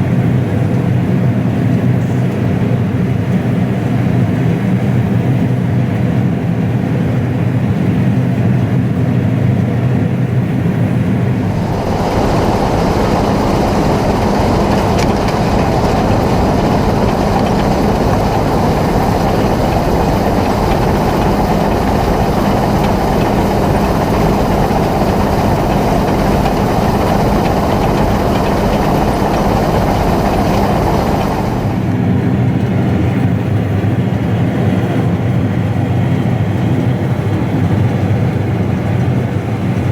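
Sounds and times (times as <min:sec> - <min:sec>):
farm machinery diesel drone: 0:10.9 - 0:34.8
loud rushing rumbling noise: 0:11.2 - 0:33.1.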